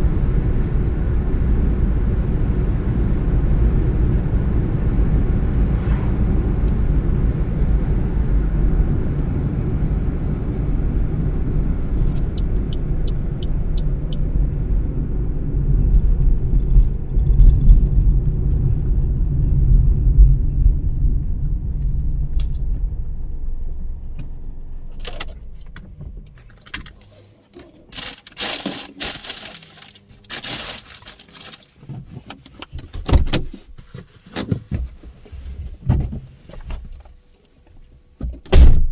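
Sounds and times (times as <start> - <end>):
car road and engine rumble: 0.0 - 38.9
sharp clicks and rattles: 11.9 - 14.2, 24.2 - 33.6.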